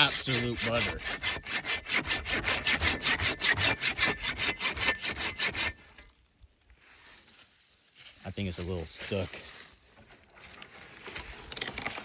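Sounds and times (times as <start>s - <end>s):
hand saw cutting wood: 0.0s - 5.9s.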